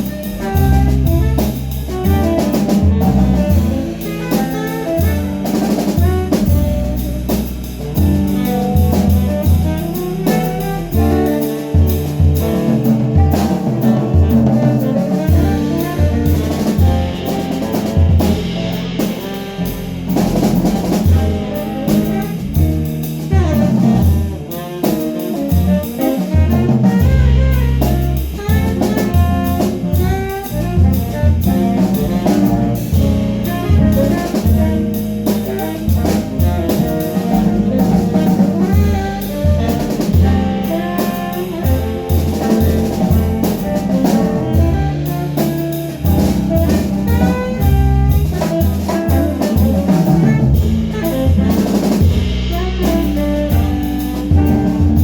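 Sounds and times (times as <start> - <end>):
bass line: 0.0 - 55.0
drum kit: 0.0 - 55.0
jazz band playing: 0.0 - 55.0.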